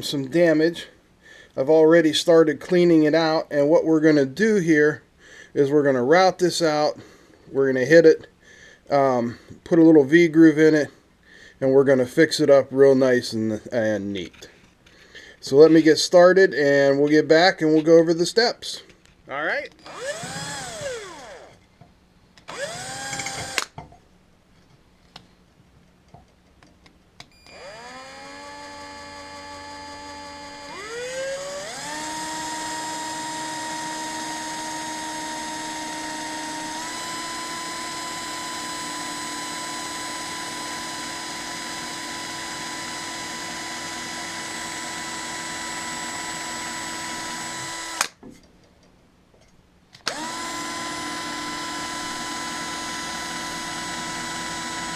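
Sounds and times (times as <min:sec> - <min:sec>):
electric drill whining: 0:19.8 - 0:21.6, 0:22.4 - 0:23.8, 0:27.4 - 0:48.2, 0:50.0 - 0:54.9.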